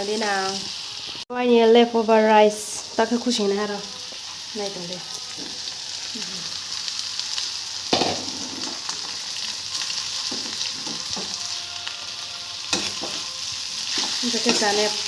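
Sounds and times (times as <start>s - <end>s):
rice sizzling in a pan: 0.0s - 15.0s
spoon scraping a pan: 9.8s - 15.0s.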